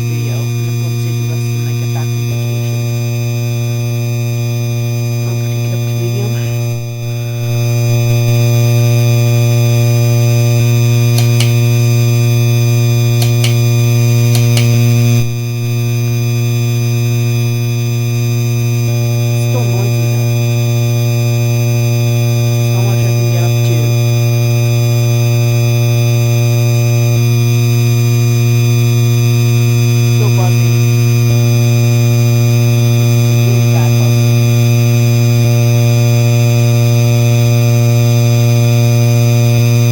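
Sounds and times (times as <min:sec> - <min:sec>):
ceiling fan motor buzzing: 0:00.0 - 0:39.9
faint clicks: 0:11.2 - 0:11.8, 0:13.2 - 0:13.7, 0:14.3 - 0:15.4.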